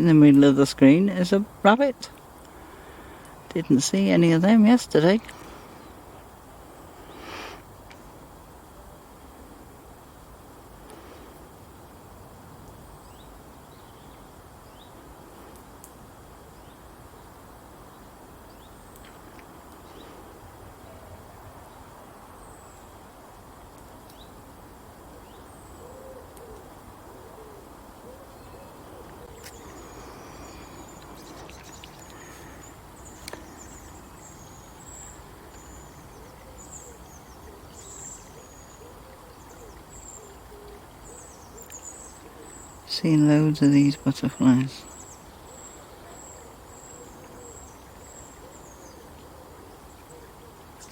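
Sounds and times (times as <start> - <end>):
low hoot-like bird calls: 25.1 - 42.8, 44.8 - 50.9.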